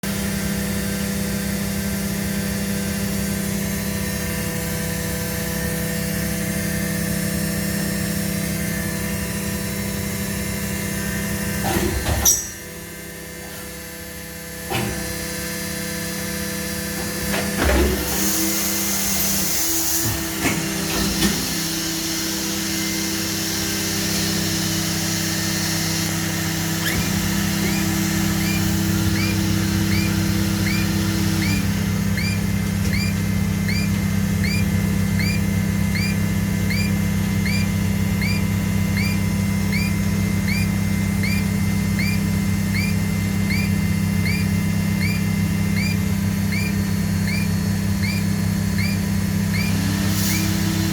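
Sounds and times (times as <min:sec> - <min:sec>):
machine humming: 0:00.0 - 0:50.9
short rising chirp: 0:26.8 - 0:49.8.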